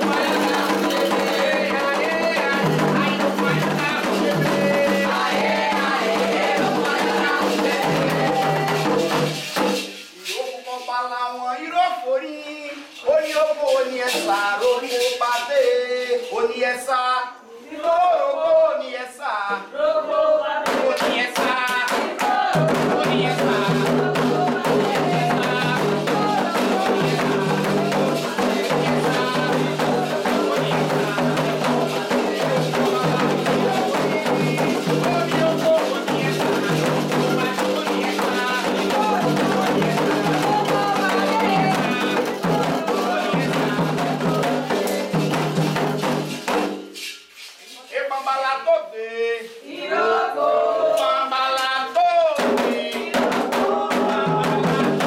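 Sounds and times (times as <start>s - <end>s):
hand drums and percussion: 0.0s - 16.9s, 20.6s - 47.9s, 51.6s - 55.0s
group singing: 0.0s - 55.0s.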